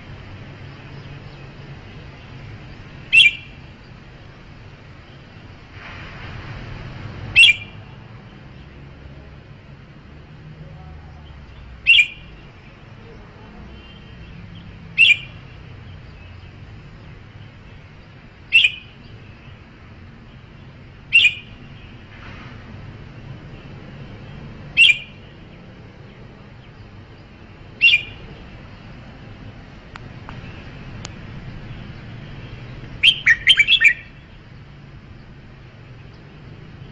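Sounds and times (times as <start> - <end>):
bird giving sharp calls: 3.1 - 3.6, 7.3 - 7.8, 11.8 - 12.3, 15.0 - 15.4, 18.5 - 19.0, 21.1 - 21.6, 24.7 - 25.2, 27.8 - 28.2, 33.0 - 34.2.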